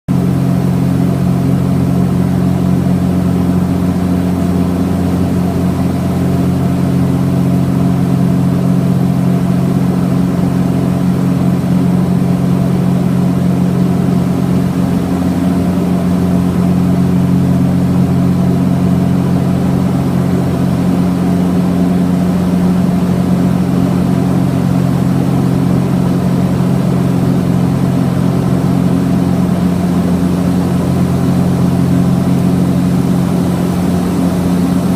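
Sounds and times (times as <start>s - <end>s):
twin propeller engines running: 0.1s - 34.9s.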